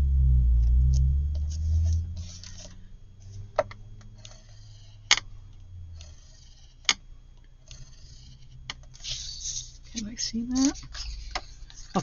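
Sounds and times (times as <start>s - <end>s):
paper rustling: 1.4s - 3.4s, 7.8s - 12.0s.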